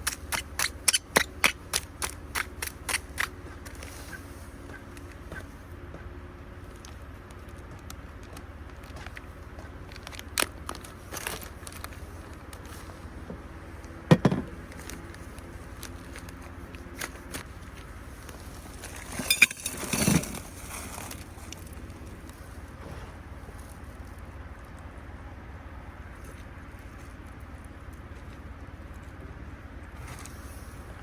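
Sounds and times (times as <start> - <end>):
knocks of things being handled: 14.1 - 14.6.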